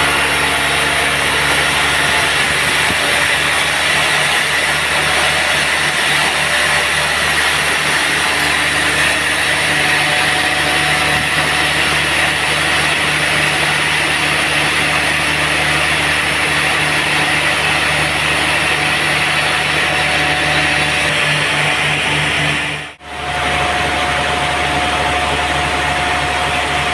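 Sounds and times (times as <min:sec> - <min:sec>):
sawmill machine drone: 0:00.0 - 0:26.9.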